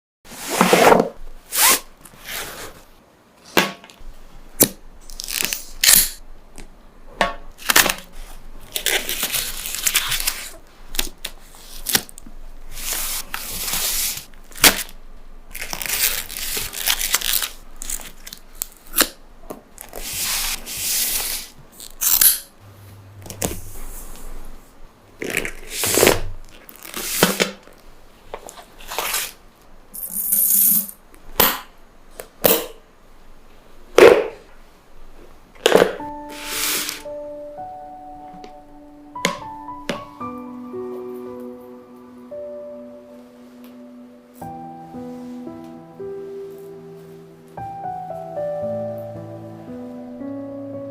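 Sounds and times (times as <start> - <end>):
packaging crinkling and rustling: 4.6 - 6.0, 7.6 - 22.2, 25.2 - 29.4
packaging tearing: 4.6 - 6.2, 7.6 - 12.2, 12.8 - 19.2, 25.2 - 27.8.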